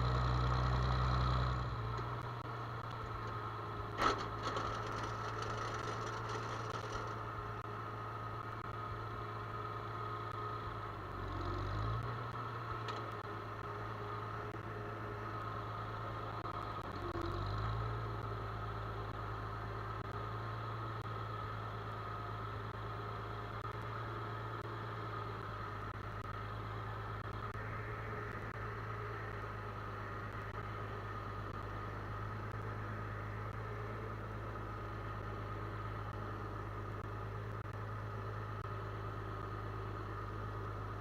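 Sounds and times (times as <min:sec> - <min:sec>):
farm machine engine running: 0:00.0 - 0:11.0.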